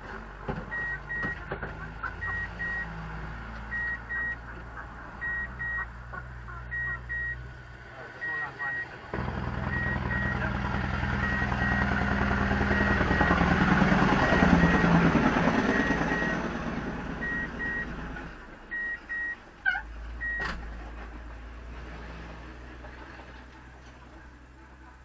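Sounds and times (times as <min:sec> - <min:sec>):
vehicle engine running: 0:00.0 - 0:25.0
reversing alarm beeps: 0:00.7 - 0:01.4, 0:02.2 - 0:02.9, 0:03.7 - 0:04.4, 0:05.2 - 0:05.8, 0:06.7 - 0:07.4, 0:08.2 - 0:08.9, 0:09.7 - 0:10.4, 0:14.2 - 0:15.0, 0:15.7 - 0:16.4, 0:17.2 - 0:17.9, 0:18.7 - 0:19.4, 0:20.2 - 0:20.4.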